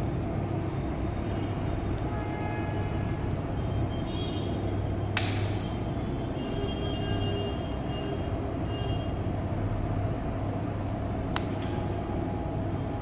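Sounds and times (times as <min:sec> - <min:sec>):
sharp click: 0:05.2 - 0:05.6.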